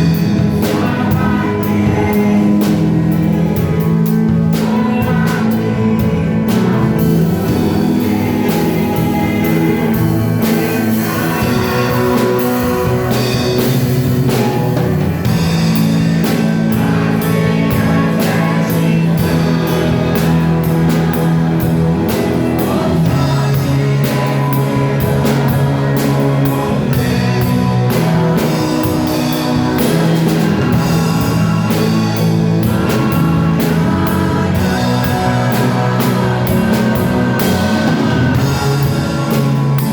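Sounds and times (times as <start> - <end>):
bass guitar: 0.0 - 39.9
drum kit beat: 0.0 - 39.9
electric guitar: 0.0 - 39.9
person singing: 0.0 - 39.9.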